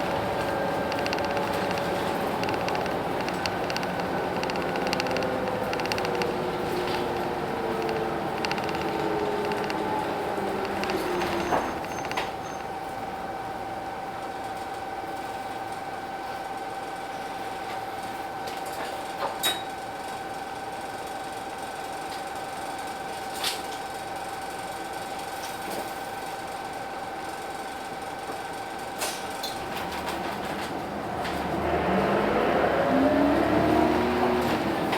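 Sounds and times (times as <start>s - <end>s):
high-pitched whine: 0.0s - 12.7s
sharp clicks: 0.0s - 12.7s.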